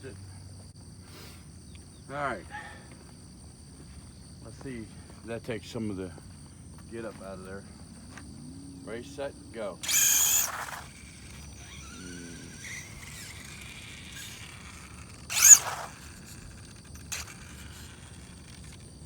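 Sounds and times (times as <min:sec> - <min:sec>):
electric motor whine: 0:06.6 - 0:19.0
tires spinning: 0:07.2 - 0:19.0.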